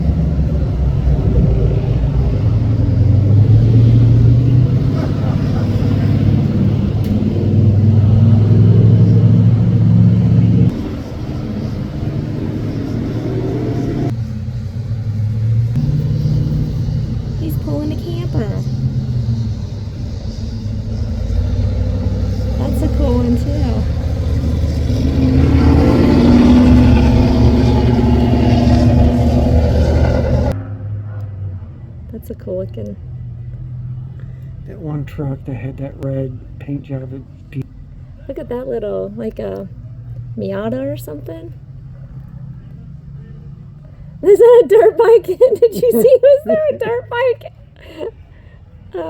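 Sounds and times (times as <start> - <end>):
car engines rumbling past: 0.0 - 49.0.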